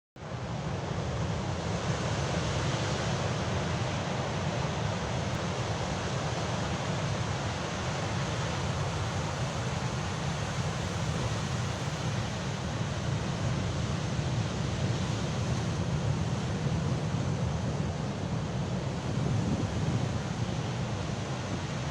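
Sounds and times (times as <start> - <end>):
sea waves surf: 0.3 - 21.9.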